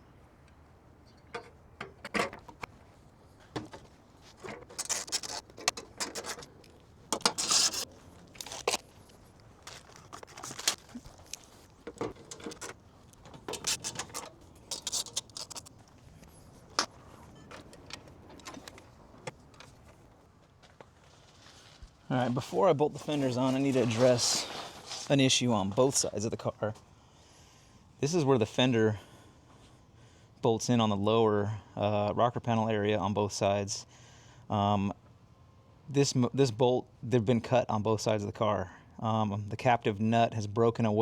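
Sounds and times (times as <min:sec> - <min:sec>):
scrape: 0:07.2 - 0:08.8, 0:23.0 - 0:25.3.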